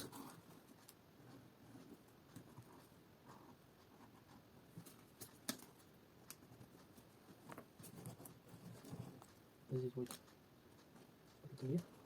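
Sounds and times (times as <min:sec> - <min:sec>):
faint clicks and taps: 0:00.0 - 0:12.0.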